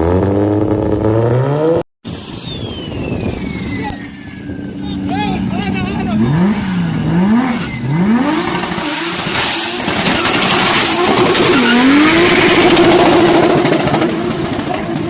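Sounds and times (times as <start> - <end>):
high whine: 2.0 - 14.6
car engine revving through loud exhaust: 6.1 - 15.0.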